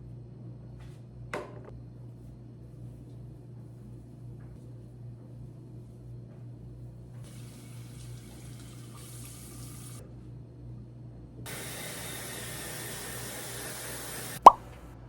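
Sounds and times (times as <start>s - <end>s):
water running: 7.2s - 10.0s, 11.5s - 14.6s.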